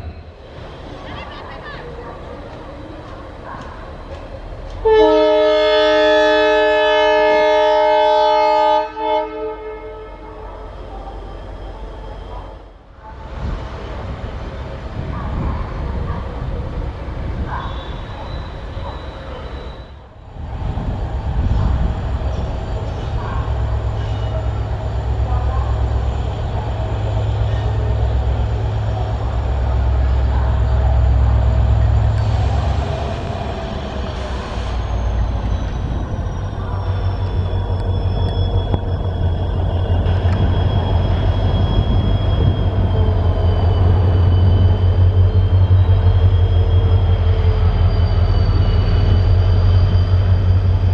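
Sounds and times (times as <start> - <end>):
train rumbling on track: 0.0 - 50.9
locomotive air horn: 4.8 - 10.5.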